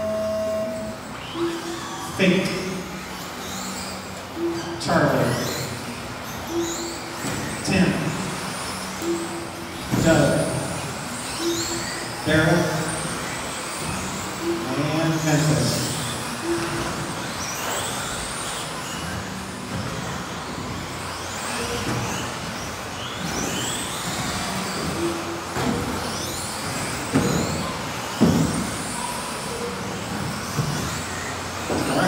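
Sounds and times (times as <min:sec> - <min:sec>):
rc car motors whining: 0:00.0 - 0:32.0.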